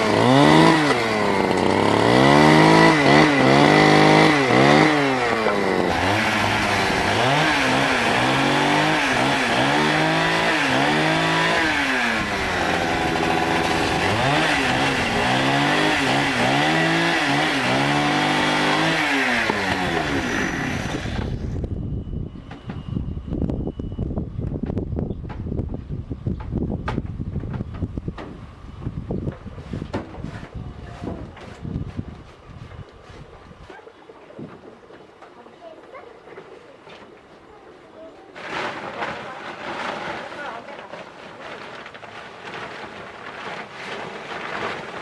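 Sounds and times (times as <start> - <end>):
chainsaw engine revving: 0.0 - 21.6, 38.4 - 45.0.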